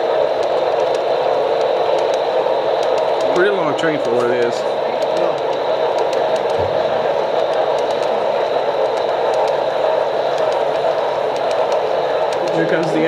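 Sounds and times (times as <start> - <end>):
faint clicks: 2.8 - 3.4, 7.4 - 8.2, 8.8 - 13.0
model train wheels clattering on rail: 2.8 - 8.2, 10.2 - 13.0.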